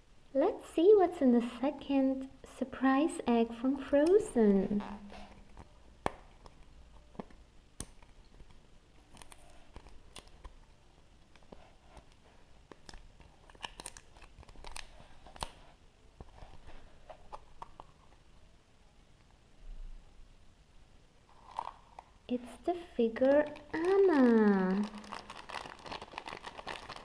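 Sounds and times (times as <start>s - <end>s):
wrapper crinkling and tearing: 9.0s - 10.5s, 12.7s - 15.6s, 21.3s - 22.1s, 23.2s - 27.0s
plastic egg clicks and cracks: 12.7s - 15.6s.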